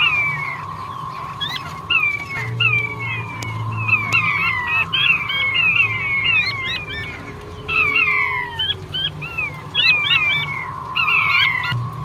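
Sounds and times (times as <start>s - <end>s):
quail calling: 0.0s - 11.8s
low steady hum: 0.0s - 12.0s.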